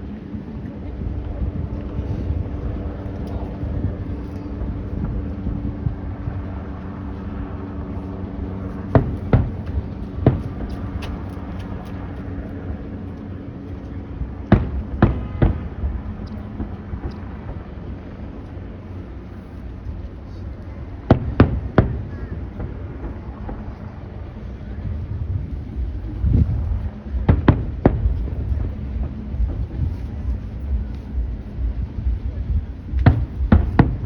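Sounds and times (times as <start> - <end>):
low background rumble: 0.0 - 34.0
fireworks bangs: 8.8 - 11.8, 14.5 - 18.4, 21.0 - 34.0.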